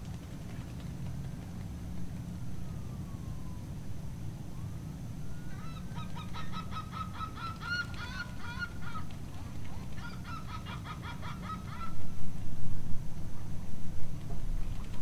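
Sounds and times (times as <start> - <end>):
waterbird calling rapid notes: 5.5 - 9.1.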